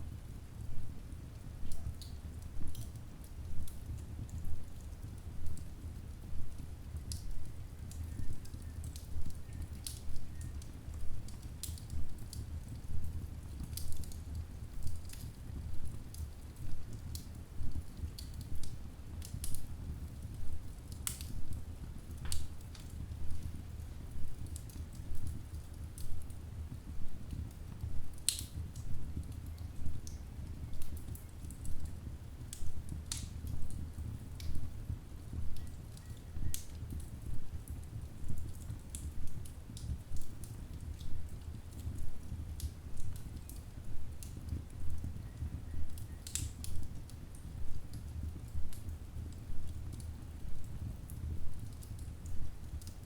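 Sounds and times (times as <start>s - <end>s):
low steady fire rumble: 0.0s - 53.0s
wood logs crackling and popping: 0.2s - 53.0s.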